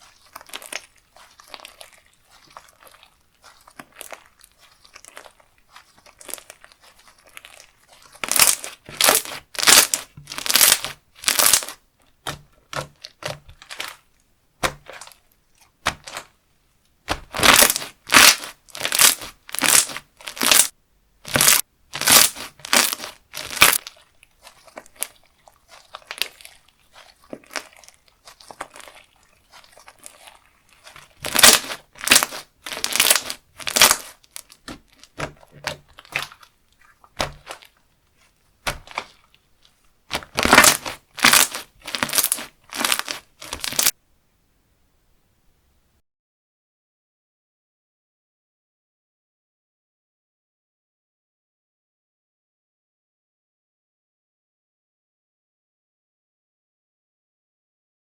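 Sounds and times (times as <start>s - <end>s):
slime crackling squishes: 0.0s - 16.4s, 17.0s - 44.0s
soft fiddling with slime: 0.0s - 44.0s.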